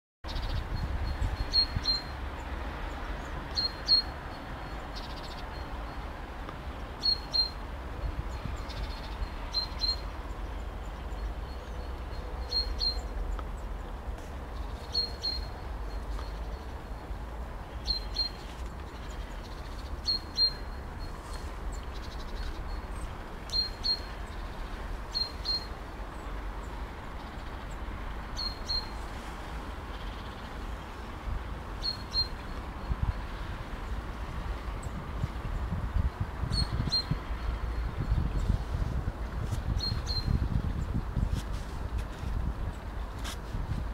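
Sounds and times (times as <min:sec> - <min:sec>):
small bird chirping: 0:00.3 - 0:02.2, 0:07.0 - 0:07.6, 0:17.8 - 0:24.5, 0:25.1 - 0:26.2, 0:31.8 - 0:32.9, 0:39.7 - 0:40.5.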